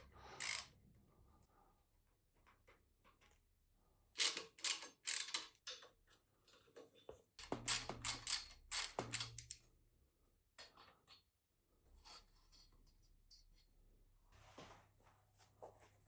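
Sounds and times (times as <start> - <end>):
metal tools clicking and rattling: 0.4 - 0.7, 4.2 - 9.6.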